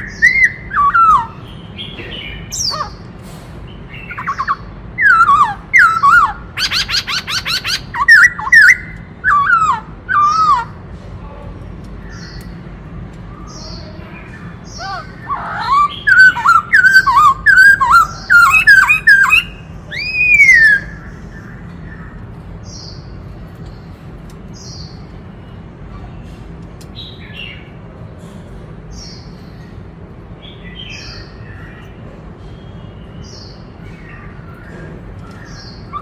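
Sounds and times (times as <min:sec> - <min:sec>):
bird whistled song: 0:00.0 - 0:03.0, 0:03.7 - 0:10.7, 0:13.5 - 0:23.0
soft high bird chirps: 0:13.3 - 0:27.8.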